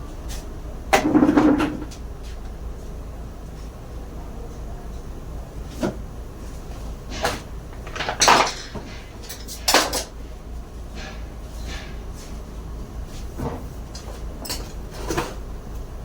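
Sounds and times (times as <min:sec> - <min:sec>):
tools and parts knocking: 0:07.0 - 0:10.2, 0:11.0 - 0:12.0.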